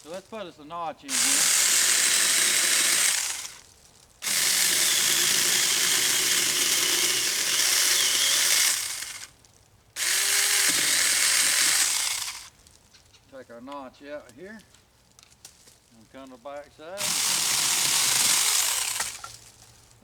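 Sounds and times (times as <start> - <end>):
electric chainsaw cutting wood: 1.1 - 3.6, 4.2 - 9.4, 10.0 - 12.6, 17.0 - 19.6.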